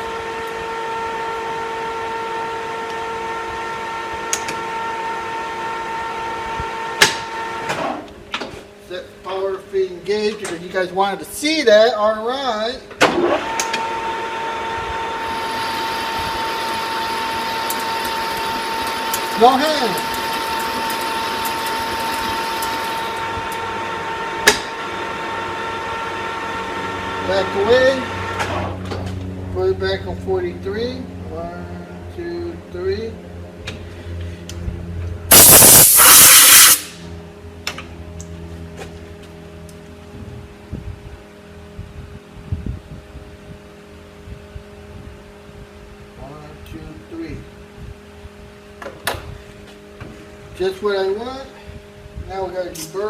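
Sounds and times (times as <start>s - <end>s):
metal lathe whining: 13.3s - 28.5s.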